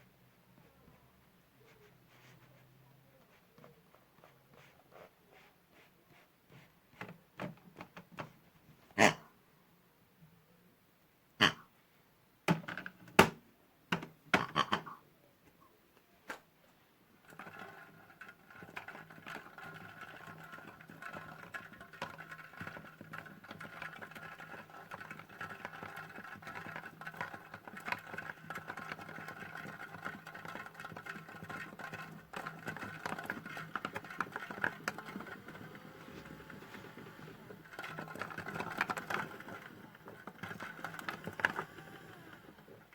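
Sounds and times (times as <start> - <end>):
small electric motor whirring: 34.5 - 42.7.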